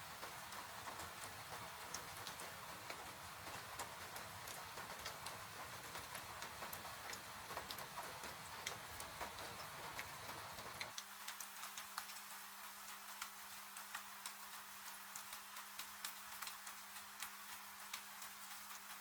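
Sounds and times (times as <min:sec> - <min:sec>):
rain hissing: 0:00.0 - 0:19.0
wood fire crackling: 0:00.4 - 0:10.9.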